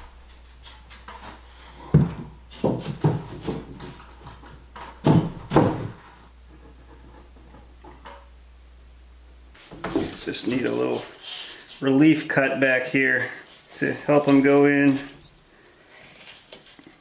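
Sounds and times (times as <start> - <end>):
wooden boards knocking: 1.1 - 6.2.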